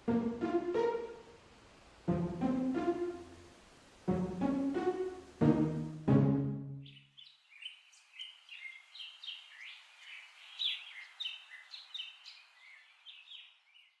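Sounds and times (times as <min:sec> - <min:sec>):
faint steady hiss: 0:00.0 - 0:14.0
small songbirds chirping: 0:06.8 - 0:14.0.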